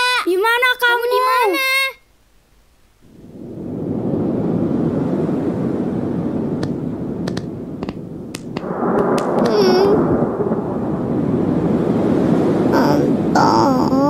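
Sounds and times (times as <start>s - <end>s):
rain and thunder rumble: 2.2s - 14.0s
sharp ticks: 6.6s - 9.6s.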